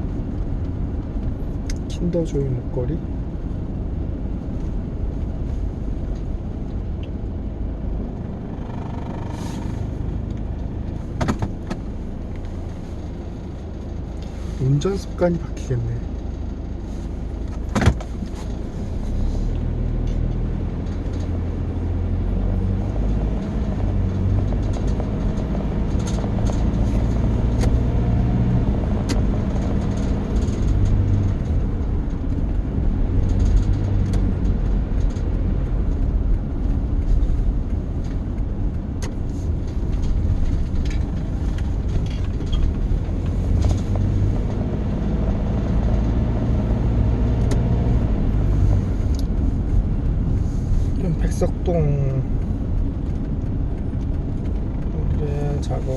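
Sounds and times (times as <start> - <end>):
car engine and road rumble: 0.0 - 55.9.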